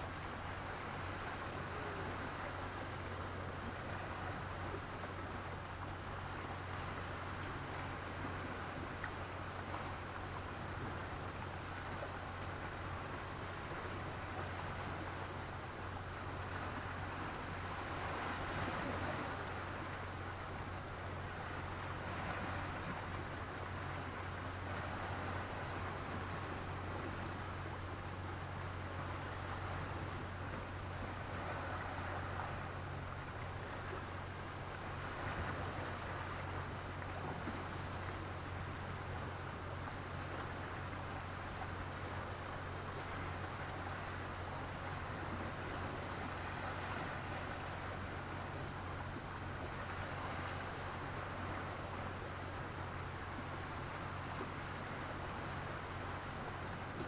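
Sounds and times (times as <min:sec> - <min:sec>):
waves breaking on stony beach: 0:00.0 - 0:27.8, 0:28.4 - 0:57.0.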